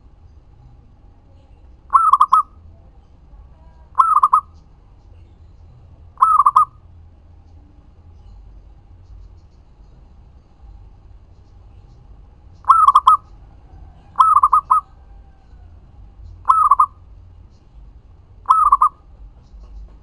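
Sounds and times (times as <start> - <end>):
dove cooing: 1.8 - 2.7, 3.5 - 4.6, 6.1 - 6.8, 12.6 - 15.8, 16.4 - 17.0, 18.5 - 19.0.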